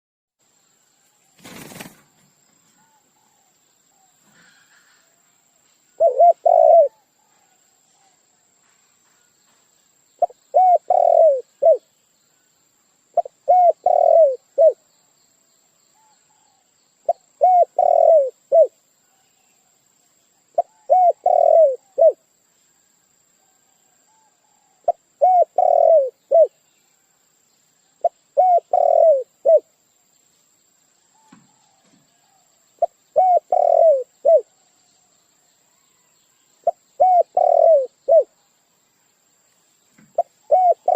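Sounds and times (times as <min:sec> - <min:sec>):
dove cooing: 0:06.0 - 0:07.1, 0:10.2 - 0:11.8, 0:13.2 - 0:14.8, 0:16.0 - 0:18.8, 0:20.6 - 0:22.2, 0:24.1 - 0:26.6, 0:28.0 - 0:29.7, 0:31.2 - 0:34.5, 0:36.7 - 0:38.3, 0:40.2 - 0:40.9.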